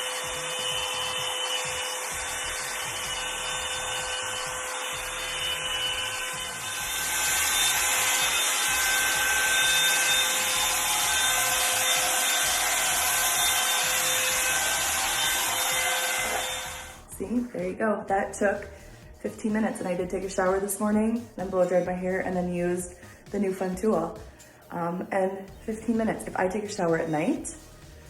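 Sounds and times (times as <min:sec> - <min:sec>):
hot-air brush dryer running: 0:00.0 - 0:17.1.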